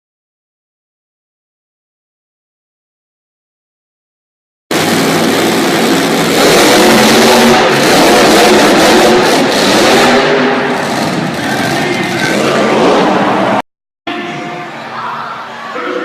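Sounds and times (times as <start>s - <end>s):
truck engine revving loudly: 4.7s - 13.6s.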